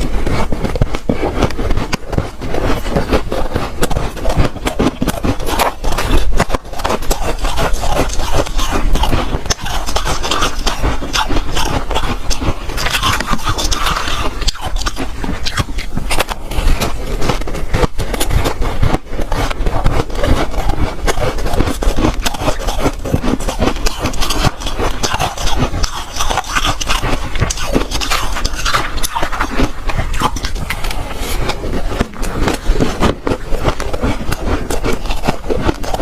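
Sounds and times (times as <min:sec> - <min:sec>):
chewing ice crunching: 0:00.0 - 0:36.0.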